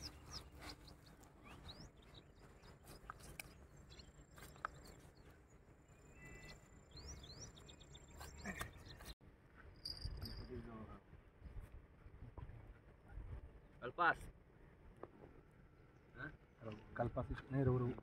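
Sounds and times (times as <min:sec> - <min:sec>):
faint bird chirps: 0:00.0 - 0:10.8.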